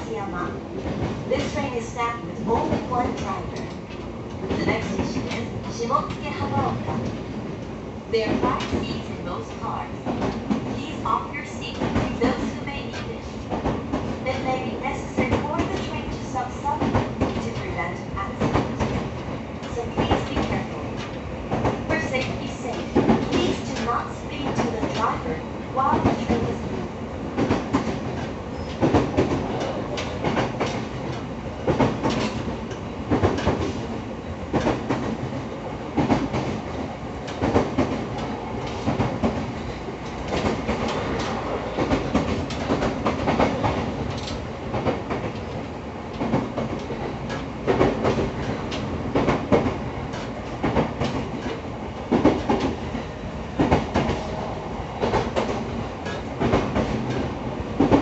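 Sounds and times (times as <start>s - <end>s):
train rolling rumble: 0.0s - 58.0s.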